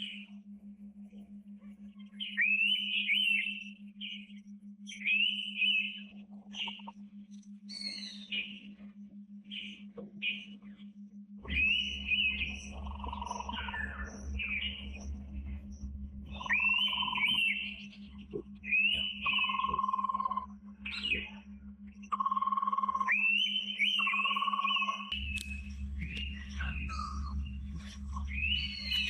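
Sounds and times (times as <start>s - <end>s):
low hum: 0.0s - 29.0s
bird calling with wavering whistle: 2.2s - 7.0s, 7.7s - 8.7s, 11.4s - 15.0s, 16.3s - 21.4s, 22.2s - 29.0s
low rumble: 11.4s - 22.1s, 25.1s - 29.0s.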